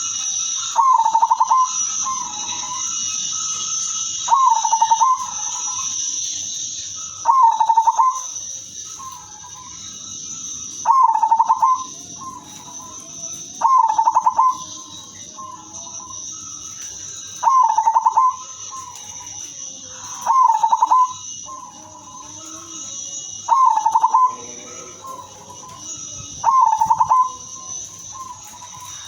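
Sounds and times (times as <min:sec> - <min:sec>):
dove cooing: 0:00.0 - 0:29.0.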